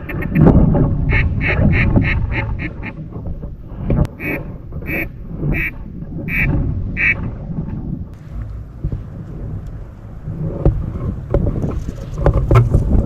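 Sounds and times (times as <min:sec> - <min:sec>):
duck quacking: 0:00.0 - 0:00.5, 0:01.1 - 0:03.0, 0:04.2 - 0:07.2
low wind rumble: 0:00.0 - 0:13.0.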